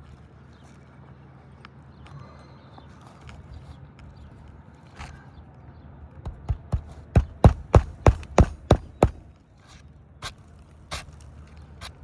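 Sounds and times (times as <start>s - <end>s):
hammer striking roofing nails: 6.3s - 9.2s.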